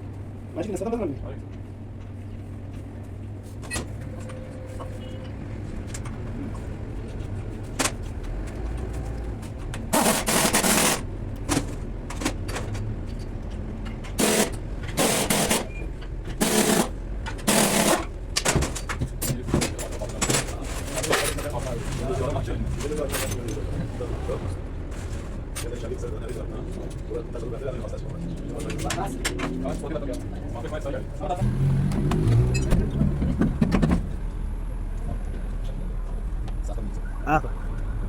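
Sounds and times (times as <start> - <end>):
impact wrench hammering: 9.9 - 11.0, 14.1 - 15.7, 16.4 - 18.6.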